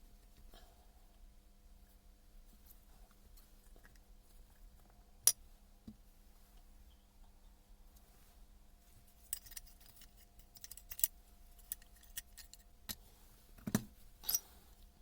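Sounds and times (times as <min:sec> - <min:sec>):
metal parts and tools clinking: 0:09.2 - 0:13.0, 0:13.7 - 0:14.6.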